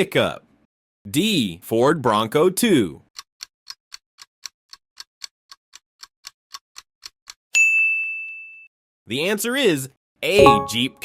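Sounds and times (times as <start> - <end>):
clock ticking: 3.2 - 7.2
bell ding: 10.4 - 11.0.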